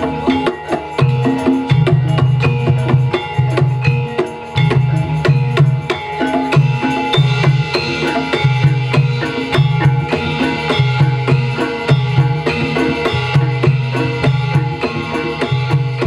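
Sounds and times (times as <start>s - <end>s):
deeper drum pattern: 0.0s - 16.0s
hand drums fast beat: 0.0s - 16.0s
ringing metal gamelan tones: 0.0s - 16.0s.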